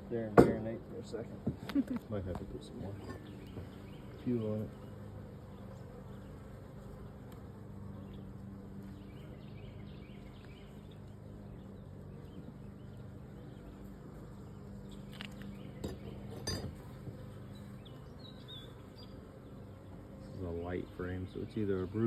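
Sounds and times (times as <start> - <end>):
honeybees buzzing: 0.0 - 22.0
light clinks and knocks: 15.2 - 16.8.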